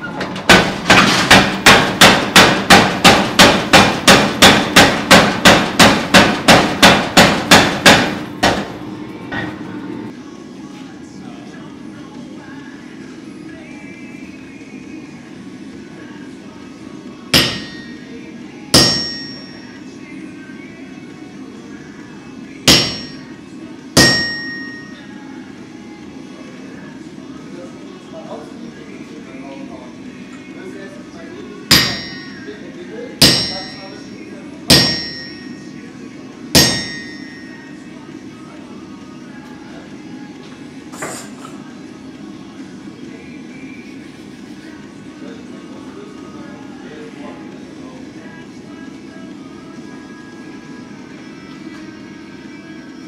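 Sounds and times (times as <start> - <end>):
steady low hum: 0.0 - 53.0
hammer striking hot steel: 0.4 - 8.8, 17.3 - 18.1, 18.7 - 19.7, 22.6 - 23.3, 24.0 - 25.0, 31.7 - 32.5, 33.2 - 34.0, 34.7 - 35.6, 36.5 - 37.6.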